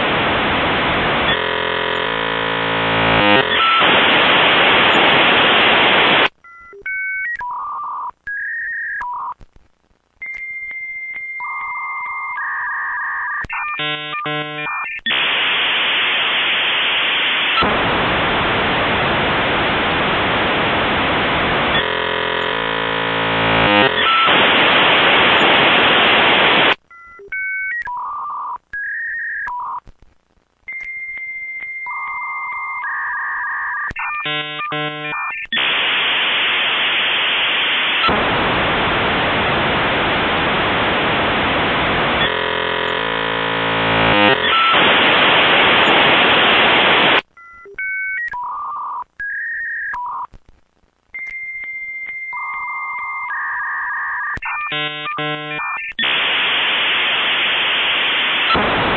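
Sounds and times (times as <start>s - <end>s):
loud hissing static: 0.0s - 6.3s, 13.8s - 26.8s, 34.0s - 47.3s, 54.4s - 58.9s
modem beeps and tones: 1.2s - 9.4s, 10.2s - 17.7s, 21.3s - 29.9s, 30.7s - 38.2s, 41.6s - 50.4s, 51.2s - 58.8s.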